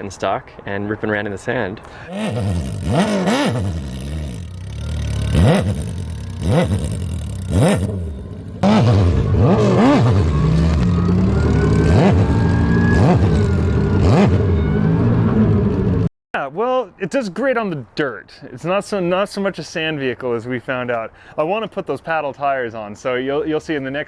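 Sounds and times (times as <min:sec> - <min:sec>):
car engine revving hard: 0:02.1 - 0:10.9.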